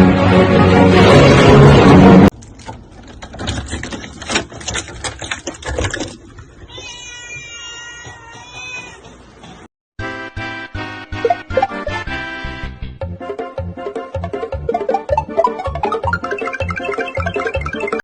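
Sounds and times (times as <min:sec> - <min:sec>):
music: 0:00.0 - 0:02.3, 0:10.0 - 0:18.0
cat meowing: 0:06.7 - 0:09.2.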